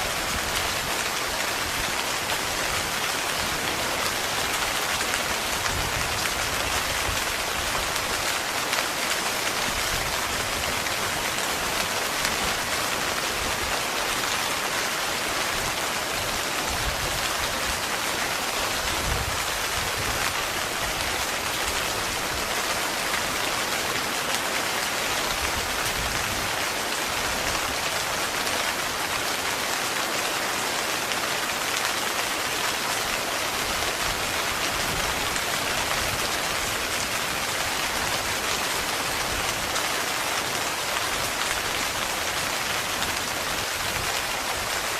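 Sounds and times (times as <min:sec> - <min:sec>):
heavy rain on a tent: 0:00.0 - 0:44.9.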